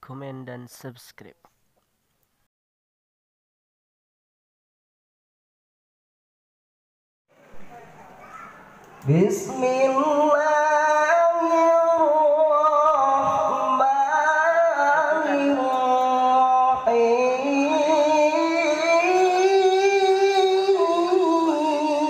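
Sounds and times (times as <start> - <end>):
solo voice melismatic chanting: 9.0 - 22.0.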